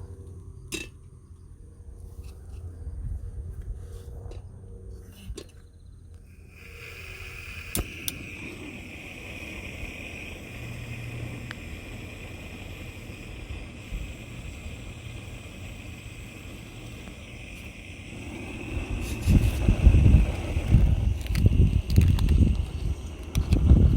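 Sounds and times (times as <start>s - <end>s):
steady high hiss: 6.2s - 23.9s
sharp clicks: 7.6s - 8.4s
wind buffeting microphone: 7.9s - 23.9s.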